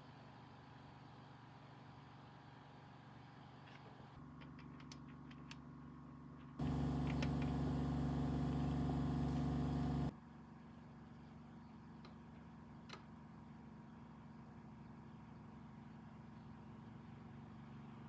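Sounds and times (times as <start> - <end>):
machine motor hum: 6.6 - 10.1.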